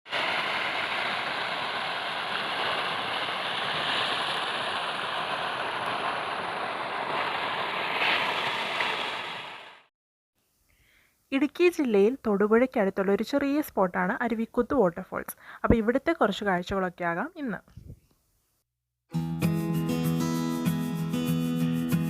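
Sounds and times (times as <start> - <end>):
waterfall rushing: 0.1 - 9.8.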